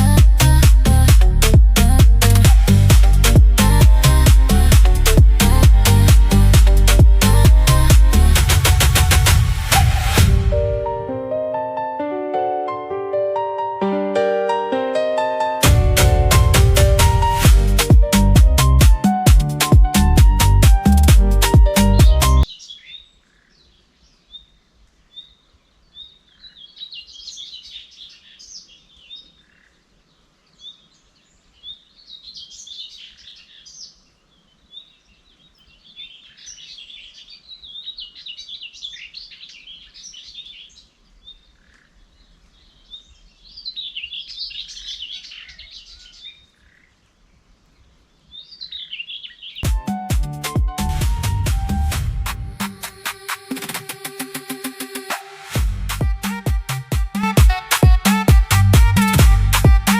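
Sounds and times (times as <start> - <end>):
birds singing: 22.4 - 49.6.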